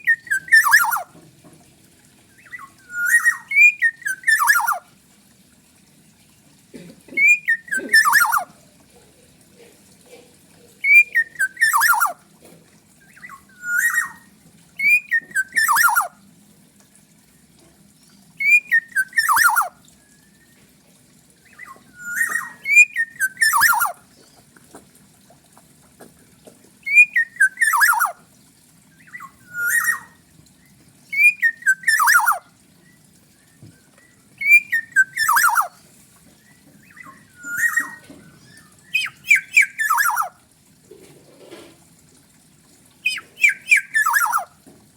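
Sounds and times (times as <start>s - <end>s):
oriole calling: 0.0s - 1.2s, 2.3s - 5.0s, 7.0s - 8.6s, 10.8s - 12.3s, 12.9s - 16.2s, 18.4s - 20.0s, 21.3s - 30.3s, 30.9s - 40.5s, 43.0s - 44.6s.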